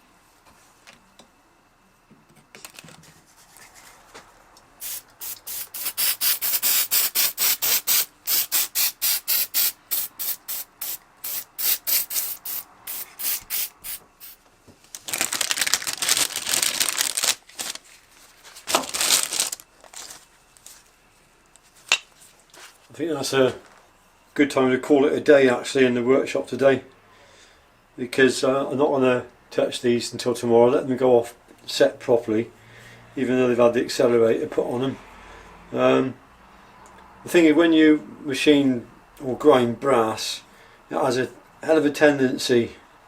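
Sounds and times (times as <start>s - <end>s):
long hissing sprays: 4.8s - 14.4s
spray puffs: 4.8s - 14.4s.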